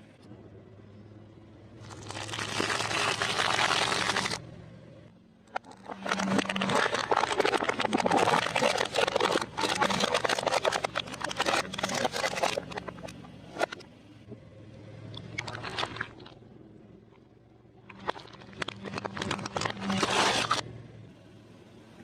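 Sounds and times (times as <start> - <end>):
low engine hum: 0.0 - 22.0
car tyre crushing crunchy food: 1.8 - 4.4, 5.5 - 13.7, 15.2 - 16.4, 17.8 - 20.6.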